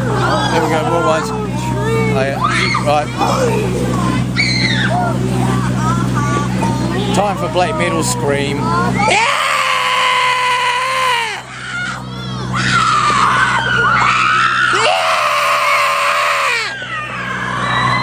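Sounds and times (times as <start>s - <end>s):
person shrieking screams: 9.0s - 16.8s.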